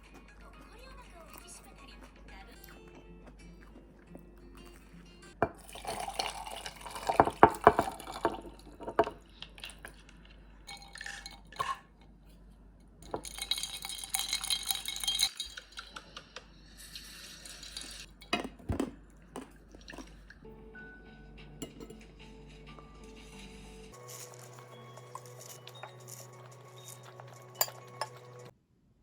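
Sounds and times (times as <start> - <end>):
dishes and utensils clattering: 5.4 - 12.4, 13.0 - 16.9, 17.5 - 20.3, 21.6 - 28.5.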